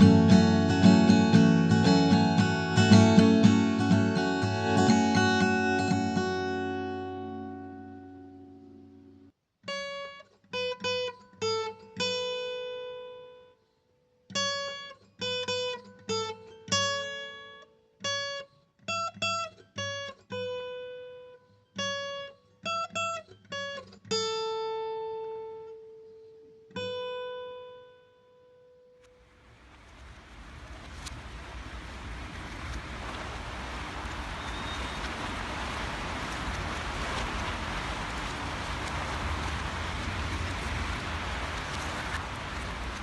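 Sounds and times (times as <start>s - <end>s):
plucked string chord ringing: 0.0s - 9.3s
plucked string melody: 0.0s - 13.4s.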